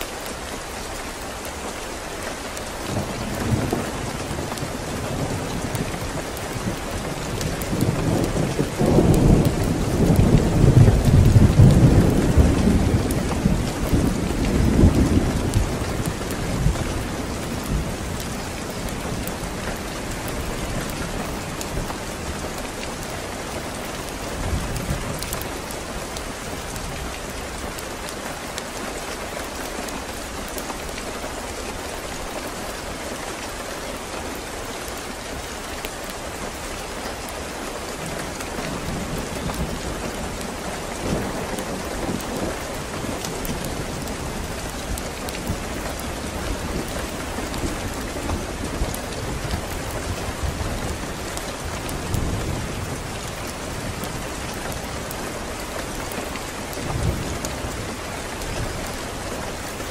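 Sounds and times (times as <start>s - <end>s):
steady rain falling: 0.0s - 59.9s
low rolling thunder: 2.9s - 27.3s.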